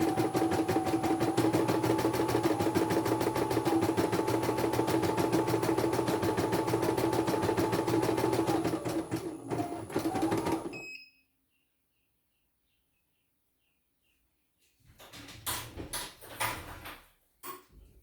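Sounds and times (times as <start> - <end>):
embroidery machine stitching: 0.0 - 10.8
short beep: 10.7 - 11.3.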